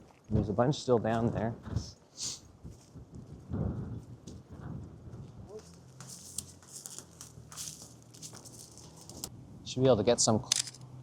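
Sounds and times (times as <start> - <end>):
wind buffeting microphone: 0.3 - 5.6.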